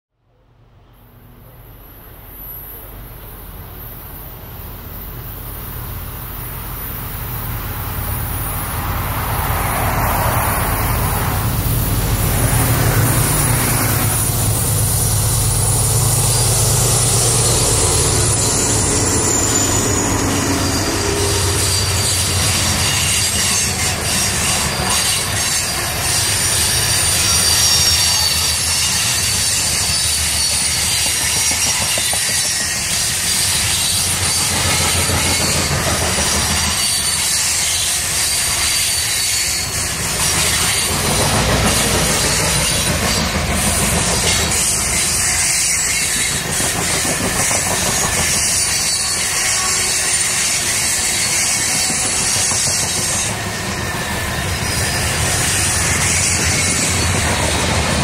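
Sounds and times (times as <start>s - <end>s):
train wheels rumbling on rails: 1.3s - 58.0s
high-pitched wheel squeal: 8.1s - 58.0s.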